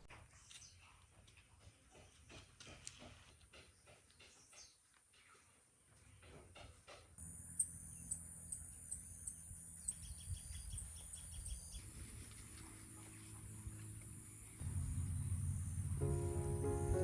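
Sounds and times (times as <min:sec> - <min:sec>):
high insect trill: 0:07.2 - 0:17.0
low rumble: 0:11.9 - 0:17.0.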